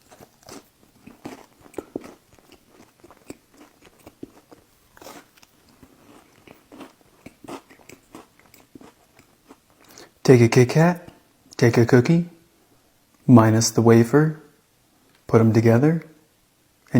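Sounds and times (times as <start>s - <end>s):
person chewing crunchy cookie: 0.0s - 10.2s.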